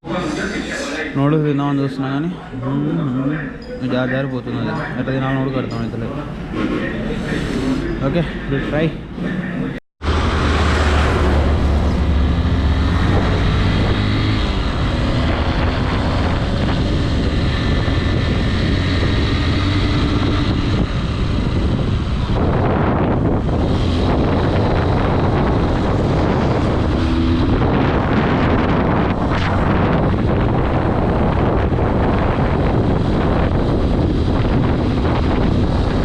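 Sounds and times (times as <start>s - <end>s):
wind buffeting microphone: 10.0s - 36.0s.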